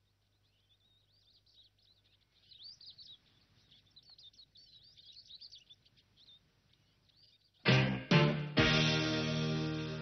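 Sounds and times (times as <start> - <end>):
faint bird song: 0.0 - 7.7.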